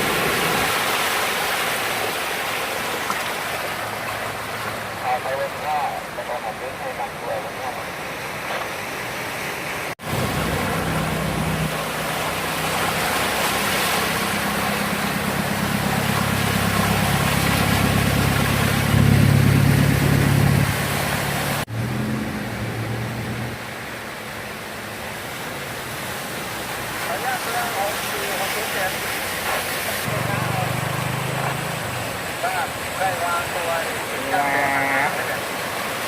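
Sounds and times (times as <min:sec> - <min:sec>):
vehicle engine running: 0:10.0 - 0:23.5, 0:30.1 - 0:32.4.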